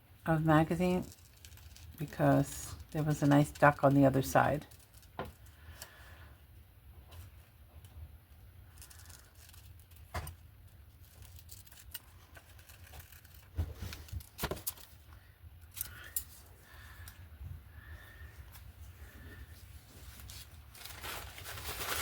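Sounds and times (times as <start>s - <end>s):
paper rustling: 8.7s - 15.0s, 19.8s - 22.0s.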